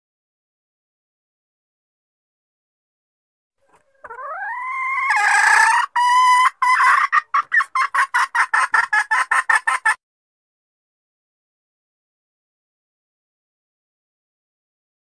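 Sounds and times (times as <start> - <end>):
hen calling and clucking: 3.6 - 10.0.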